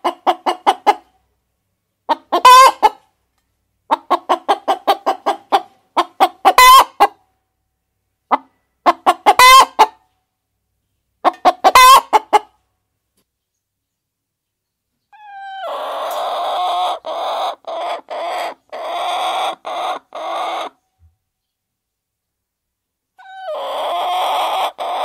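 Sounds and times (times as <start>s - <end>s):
hen cackling: 2.1s - 3.0s, 3.9s - 7.2s, 8.3s - 10.0s, 11.2s - 12.5s, 15.1s - 20.8s, 23.2s - 25.0s.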